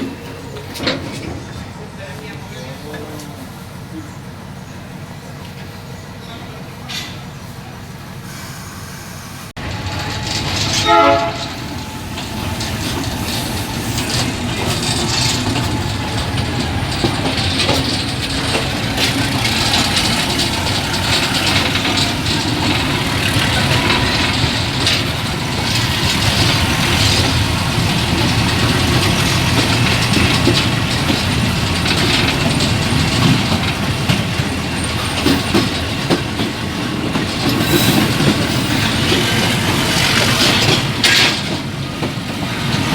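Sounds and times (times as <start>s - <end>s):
train rumbling on rails: 0.0s - 42.9s
train horn blast: 8.3s - 12.0s.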